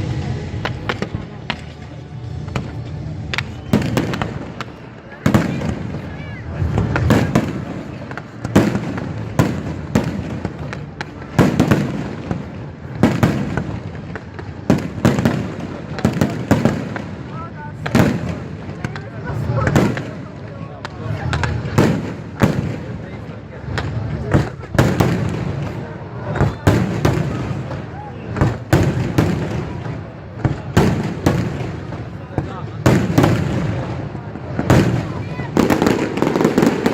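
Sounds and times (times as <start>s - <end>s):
faint crowd voices: 0.0s - 36.9s
fireworks bangs: 0.0s - 36.9s.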